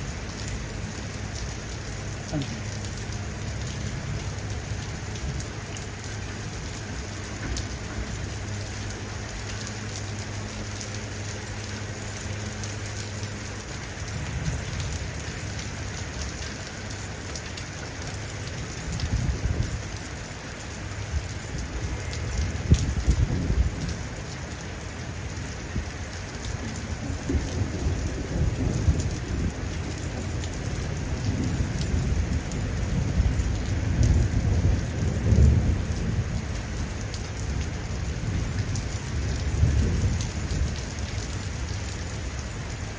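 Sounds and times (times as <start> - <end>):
steady rain: 0.0 - 42.9
rolling thunder: 26.9 - 40.9.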